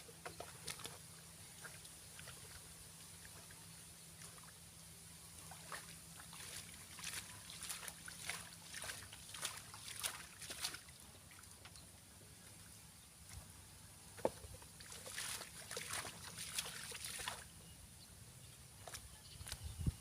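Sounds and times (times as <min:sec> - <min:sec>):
splashing in shallow water: 0:00.0 - 0:04.6, 0:05.2 - 0:11.7, 0:14.2 - 0:17.6
low steady hum: 0:00.0 - 0:20.0.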